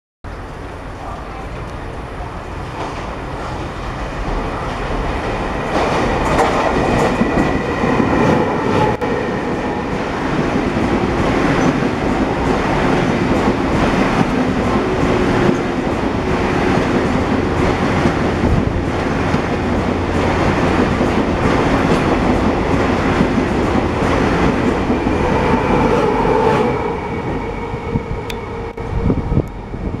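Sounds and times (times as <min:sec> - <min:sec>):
train wheels rumbling on rails: 0:00.3 - 0:30.0.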